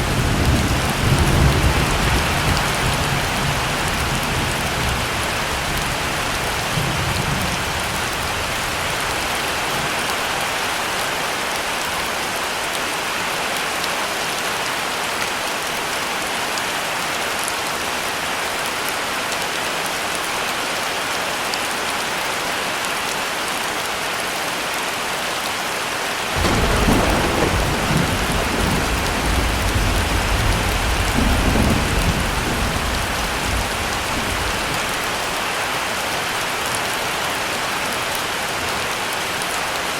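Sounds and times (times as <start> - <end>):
thunder clap and rumble: 0.0 - 9.5, 26.4 - 35.2
heavy rain falling: 0.0 - 39.9.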